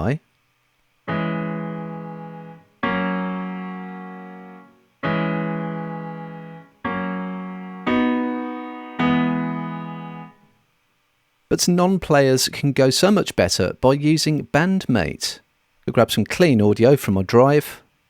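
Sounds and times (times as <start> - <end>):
piano block chords: 1.1 - 10.5.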